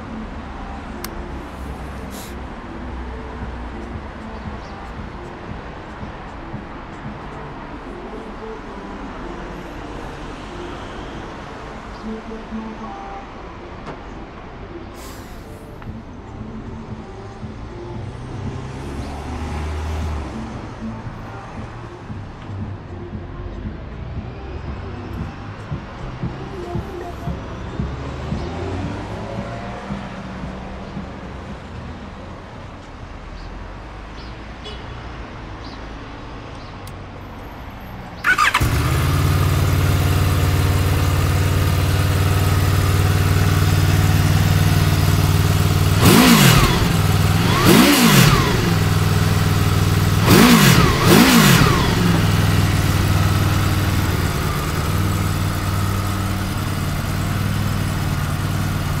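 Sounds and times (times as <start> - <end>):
motorcycle engine idling: 38.2 - 59.0
motorcycle engine revving: 38.2 - 59.0.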